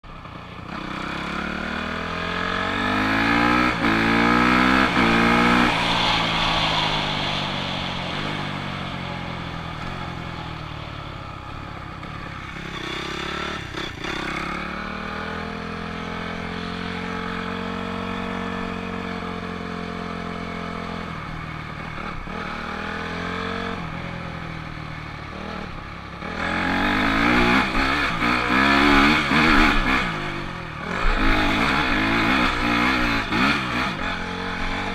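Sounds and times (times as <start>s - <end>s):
dirt bike engine revving: 0.6s - 10.3s, 12.0s - 19.2s, 26.2s - 34.9s.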